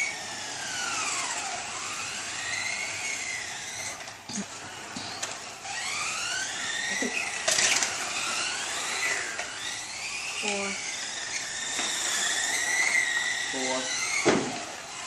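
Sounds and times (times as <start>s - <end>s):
rc car electric motors whining: 0.0s - 15.0s.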